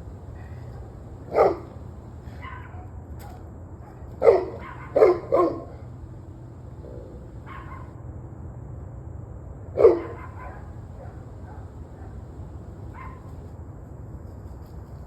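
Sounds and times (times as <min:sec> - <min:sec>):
low background hum: 0:00.0 - 0:15.0
dog barking: 0:00.1 - 0:06.0, 0:06.7 - 0:08.0, 0:09.8 - 0:13.5.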